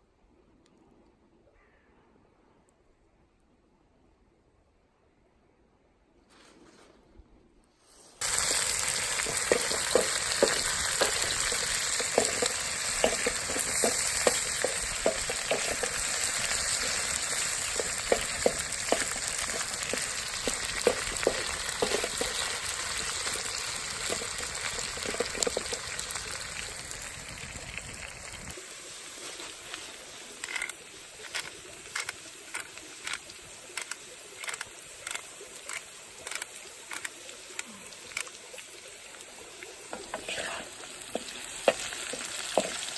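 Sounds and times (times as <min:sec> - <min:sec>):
potatoes sizzling in hot oil: 0:08.2 - 0:42.9.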